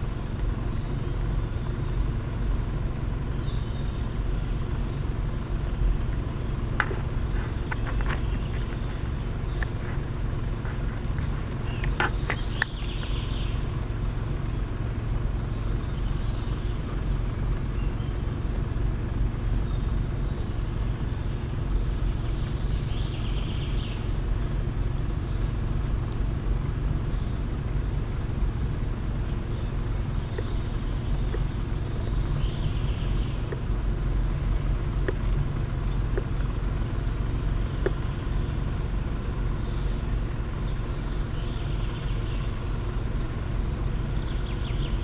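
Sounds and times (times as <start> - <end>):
steady low rumble: 0.0 - 45.0.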